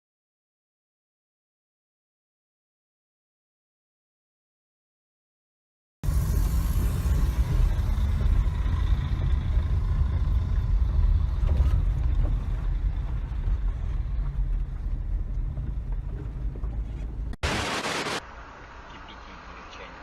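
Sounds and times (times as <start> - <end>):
car engine and tyres rumbling: 6.0 - 17.4, 18.2 - 20.0.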